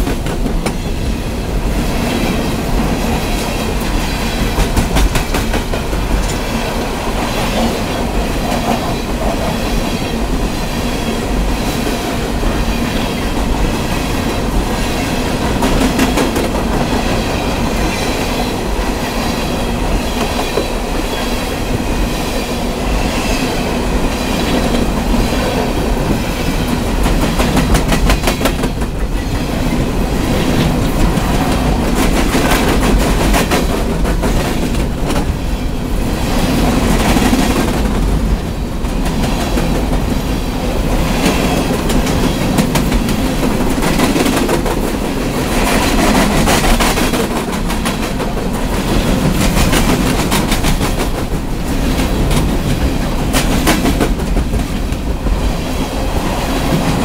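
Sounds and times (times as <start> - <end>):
train wheels rumbling on rail: 0.0 - 57.0
wheels clacking over rail joints: 2.0 - 11.9.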